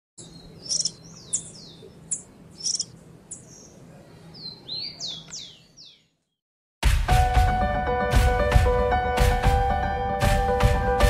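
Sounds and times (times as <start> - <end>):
small bird chips: 0.6 - 3.5.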